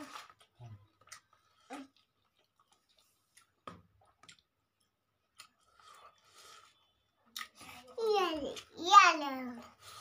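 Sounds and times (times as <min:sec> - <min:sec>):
wet mouth chewing sounds: 0:00.2 - 0:07.9.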